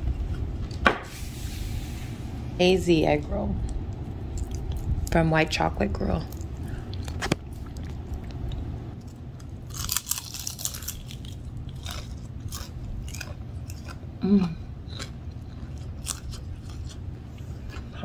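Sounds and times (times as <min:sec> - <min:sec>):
crunching and chewing food: 0:03.6 - 0:05.2, 0:06.1 - 0:18.0
person humming mm: 0:14.2 - 0:14.6.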